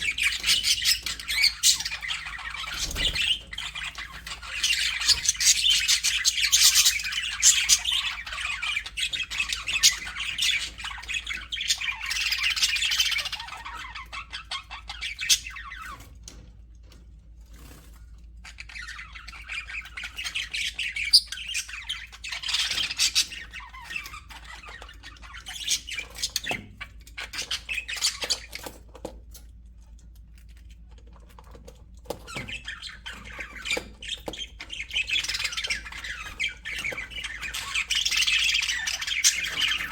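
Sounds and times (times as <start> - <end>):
budgerigars chattering and chirping: 0.0 - 16.1, 18.4 - 28.8, 32.1 - 39.9.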